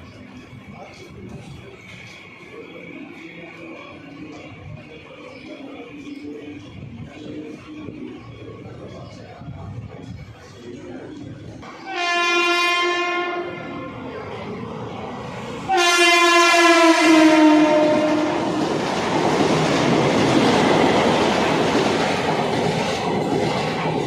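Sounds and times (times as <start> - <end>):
passing train rumble and rail clatter: 0.0 - 24.0
train horn: 11.7 - 14.0, 15.6 - 18.8.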